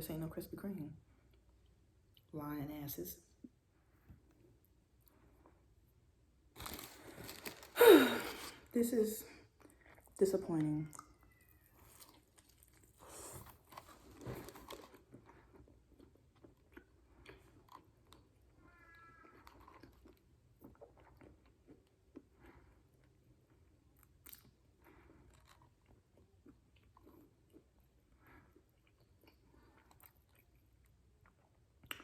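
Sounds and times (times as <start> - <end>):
person chewing with mouth clicks: 10.9 - 18.4, 19.2 - 32.0.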